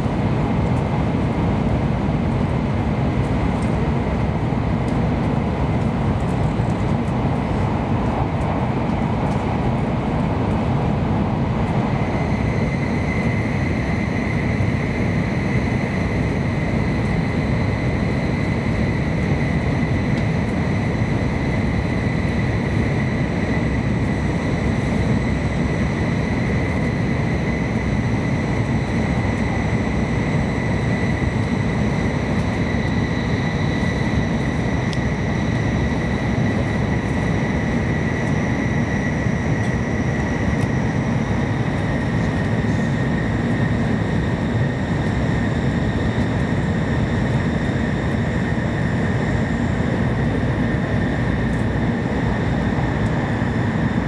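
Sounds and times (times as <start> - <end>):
train rumble from inside cabin: 0.0 - 54.0.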